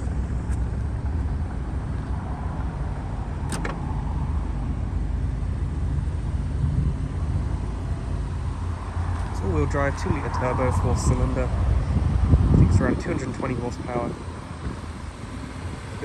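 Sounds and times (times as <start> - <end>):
car engine idling hum: 0.0 - 16.0
power liftgate motor closing: 3.4 - 3.9
liftgate latch click: 3.5 - 3.8.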